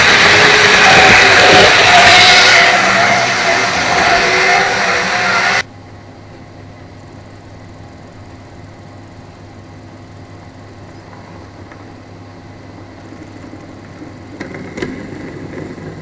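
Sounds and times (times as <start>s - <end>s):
model train motor and wheels: 0.0s - 5.7s
faint steady hum: 0.0s - 16.0s.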